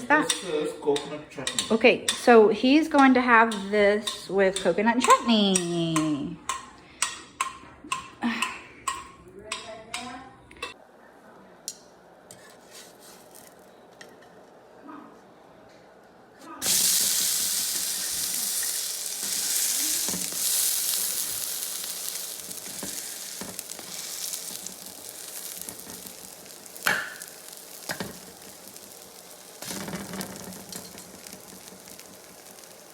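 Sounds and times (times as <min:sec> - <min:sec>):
batter sizzling on a hot pan: 0:12.6 - 0:13.8, 0:16.6 - 0:32.9.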